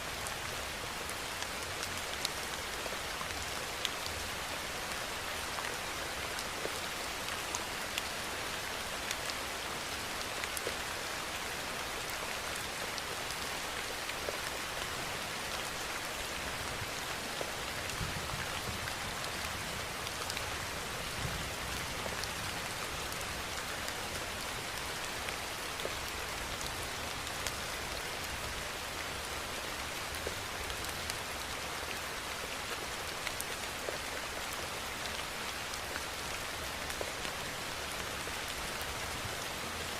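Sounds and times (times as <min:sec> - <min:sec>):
raindrops ticking close by: 0:00.1 - 0:39.9.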